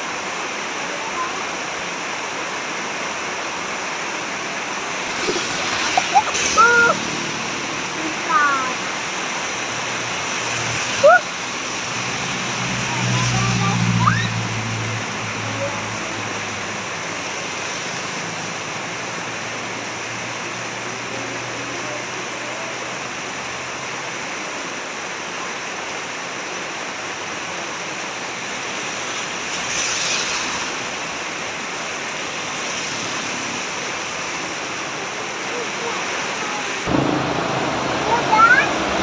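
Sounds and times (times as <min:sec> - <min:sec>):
heavy rain: 0:00.0 - 0:39.0
low hum: 0:36.9 - 0:39.0.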